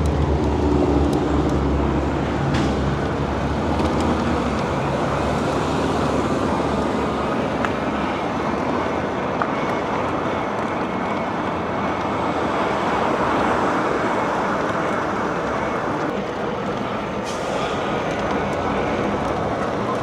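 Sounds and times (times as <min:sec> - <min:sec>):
road noise: 0:00.0 - 0:20.0.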